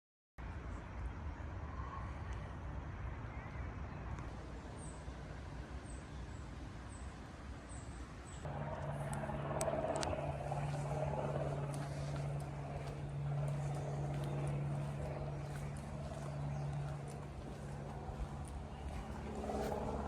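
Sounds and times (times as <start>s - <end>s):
motor humming: 8.5s - 20.0s.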